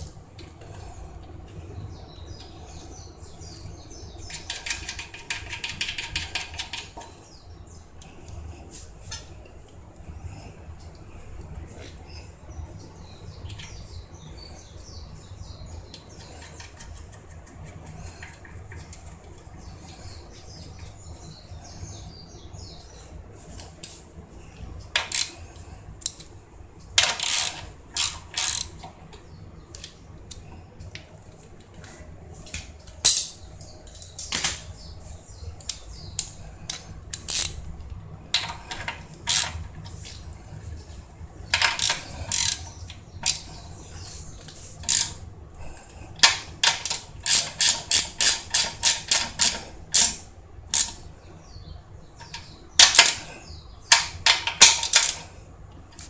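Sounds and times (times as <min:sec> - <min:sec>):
ratchet wrench clicking: 0:27.0 - 0:28.8, 0:37.1 - 0:37.6, 0:38.4 - 0:39.6, 0:41.6 - 0:43.5, 0:44.8 - 0:45.2, 0:46.2 - 0:51.0.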